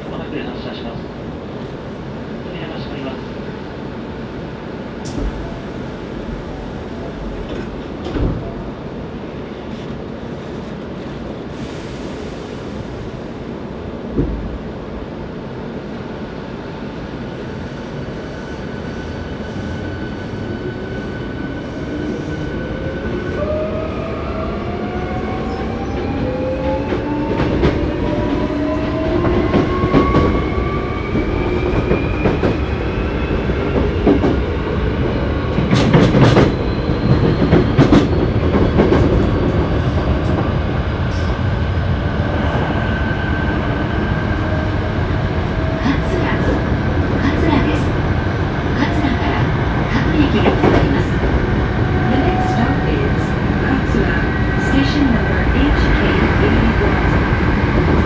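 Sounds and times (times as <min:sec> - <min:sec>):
train wheels rumbling on rails: 0:05.0 - 0:58.0.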